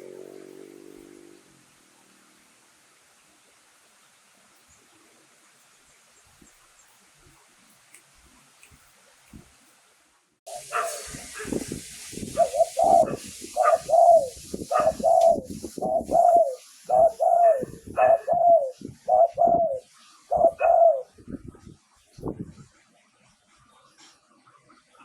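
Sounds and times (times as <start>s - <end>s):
dove cooing: 10.5s - 21.1s.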